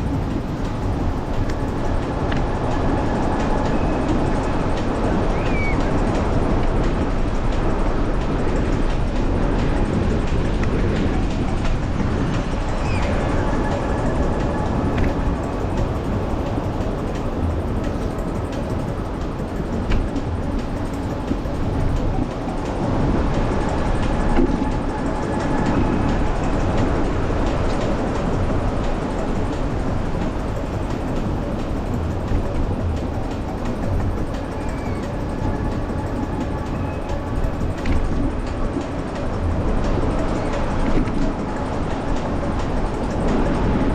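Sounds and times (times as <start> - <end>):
faint ticks and rattles: 0.0 - 43.9
wind over microphone: 0.0 - 43.9.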